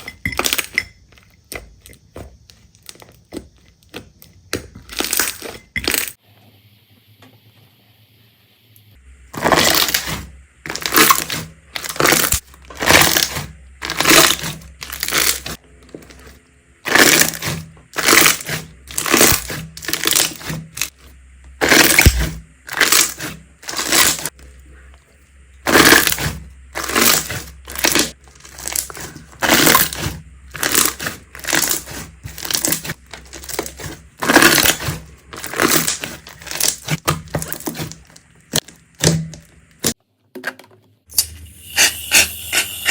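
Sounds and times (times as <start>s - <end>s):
slime squelching: 0.0s - 6.2s, 9.1s - 40.0s
faint low hum: 23.4s - 36.6s.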